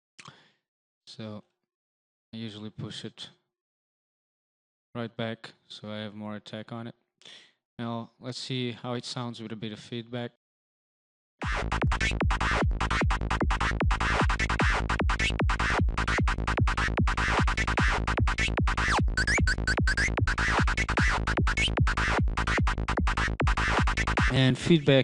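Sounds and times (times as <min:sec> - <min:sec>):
synth lead fast notes: 0:11.4 - 0:24.9.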